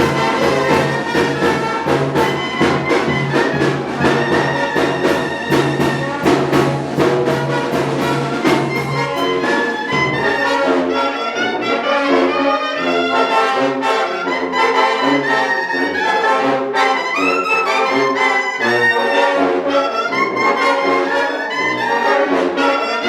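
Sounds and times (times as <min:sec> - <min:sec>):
steady drum beat: 0:00.0 - 0:10.6
low brass bass line: 0:00.0 - 0:23.0
trumpets and trombones: 0:00.0 - 0:23.0.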